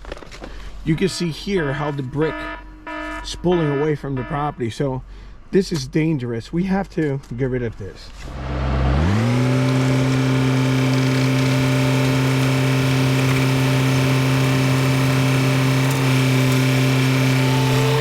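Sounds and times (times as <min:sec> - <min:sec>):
excavator diesel engine high revs: 0:08.2 - 0:18.0.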